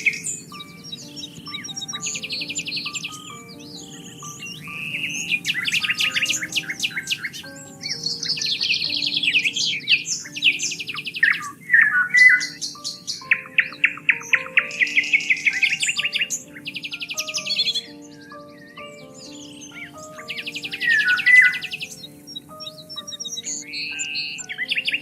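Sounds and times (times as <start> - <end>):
soft music with held notes: 0.0 - 25.0
songbirds trilling and chirping: 0.0 - 25.0.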